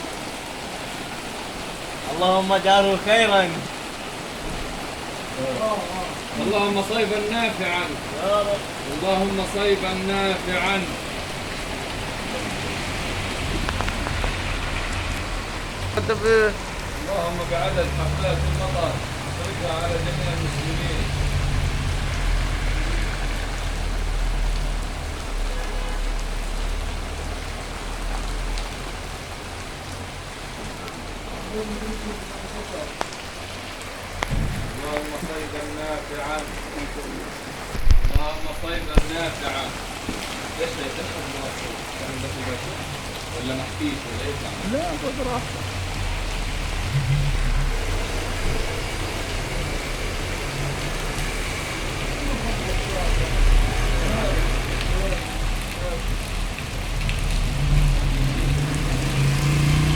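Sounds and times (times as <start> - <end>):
heavy rain pouring: 0.0 - 59.9
low rumble: 45.8 - 50.4.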